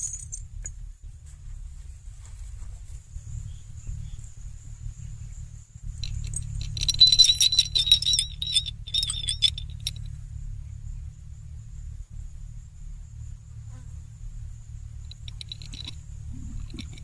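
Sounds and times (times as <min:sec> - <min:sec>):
metallic jingling and clinking: 0:00.0 - 0:00.8, 0:05.8 - 0:10.2, 0:15.0 - 0:17.0
low rumble: 0:03.1 - 0:13.5.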